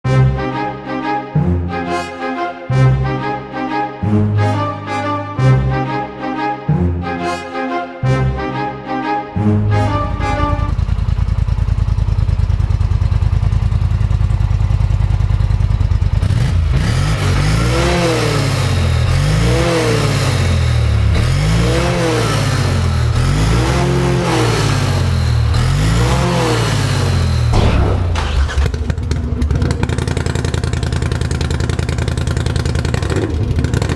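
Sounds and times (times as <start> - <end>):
atv engine idling and revving: 10.7 - 27.6, 28.2 - 33.9.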